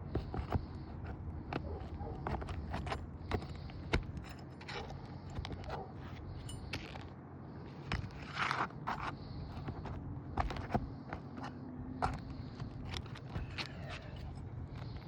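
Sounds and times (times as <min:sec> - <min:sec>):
hand tools scraping roof shingles: 0:00.1 - 0:07.0.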